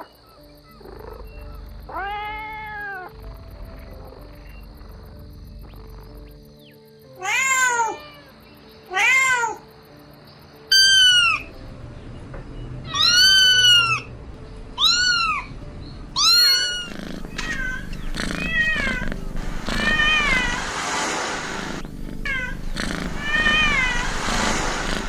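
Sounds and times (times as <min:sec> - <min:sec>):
kitten meowing: 0:01.9 - 0:03.1, 0:10.7 - 0:11.5, 0:12.9 - 0:14.1, 0:14.8 - 0:15.5, 0:16.2 - 0:20.6, 0:21.7 - 0:24.6.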